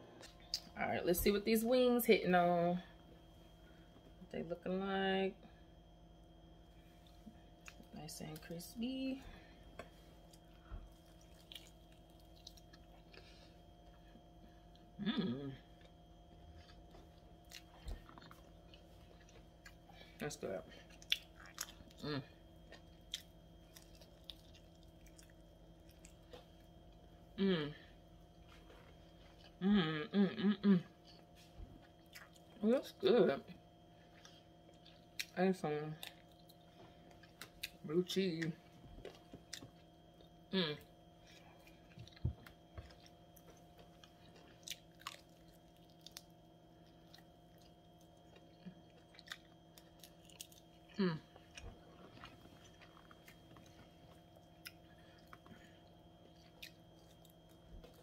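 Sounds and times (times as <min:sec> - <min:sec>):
crunchy chewing: 0:09.8 - 0:14.8, 0:15.6 - 0:20.1, 0:20.7 - 0:27.2, 0:31.0 - 0:32.6, 0:34.0 - 0:37.8, 0:39.0 - 0:58.0.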